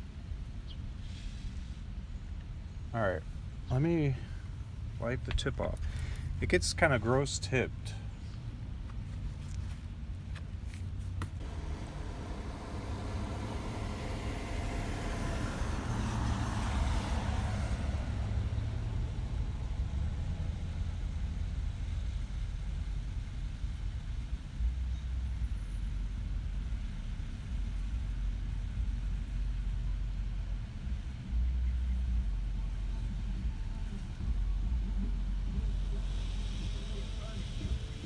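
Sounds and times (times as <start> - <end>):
steady low rumble: 0.0 - 38.0
vehicle passing by: 11.4 - 22.6.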